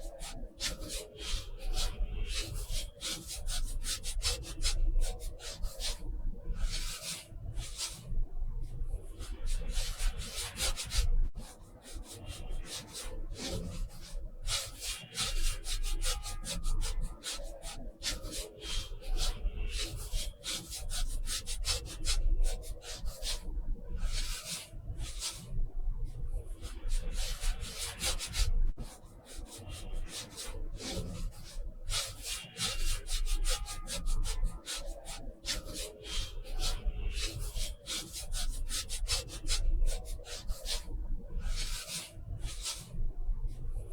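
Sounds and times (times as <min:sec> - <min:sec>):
brush scratching on paper: 0:26.5 - 0:43.0.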